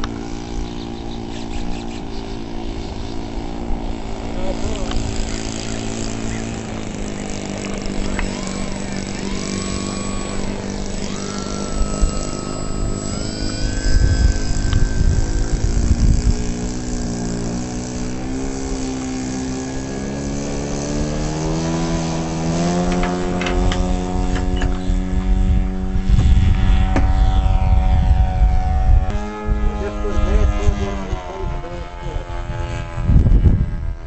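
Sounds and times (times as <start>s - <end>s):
model airplane motor whine: 0.0s - 34.0s
low rumble gusts: 2.7s - 18.8s.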